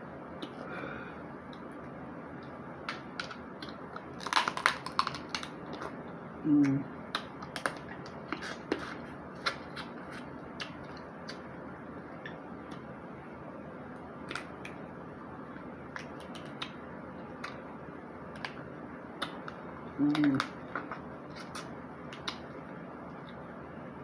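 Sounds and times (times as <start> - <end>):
crab shell cracking: 2.9 - 5.9.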